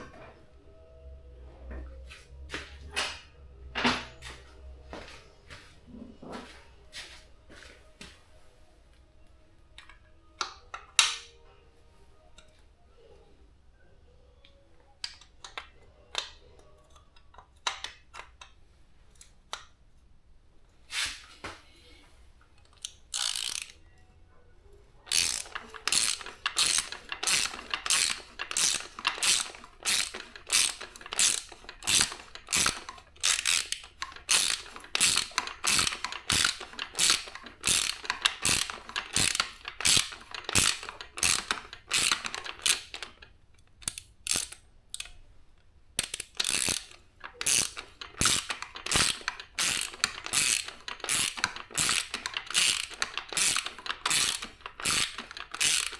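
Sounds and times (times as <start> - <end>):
ratchet wrench clicking: 22.8 - 23.8, 25.1 - 45.2, 46.0 - 55.9.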